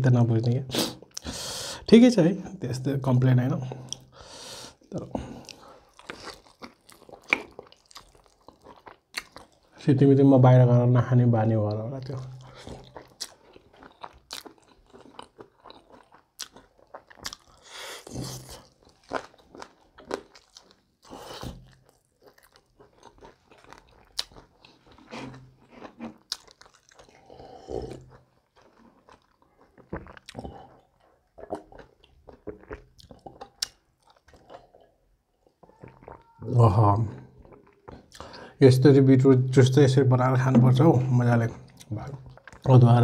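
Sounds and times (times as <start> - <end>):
crunching and chewing: 5.2 - 9.8, 12.0 - 36.5, 37.2 - 38.4, 41.6 - 42.8.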